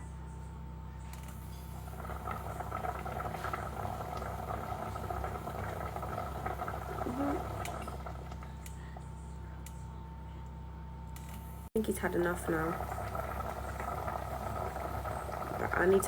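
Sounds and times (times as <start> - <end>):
low electrical hum: 0.0 - 16.0
food bubbling in a pot: 1.1 - 9.8, 11.8 - 16.0.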